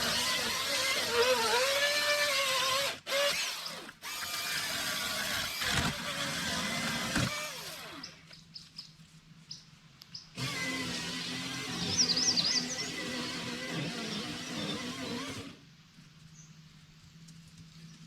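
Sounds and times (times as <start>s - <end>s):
electric chainsaw running: 0.0s - 8.1s, 10.4s - 15.6s.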